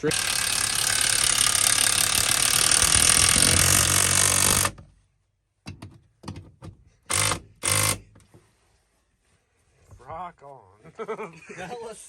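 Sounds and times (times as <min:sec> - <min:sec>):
power tool running: 0:00.0 - 0:04.8, 0:07.1 - 0:08.1
power tool trigger bursts: 0:00.0 - 0:04.8, 0:07.1 - 0:08.1.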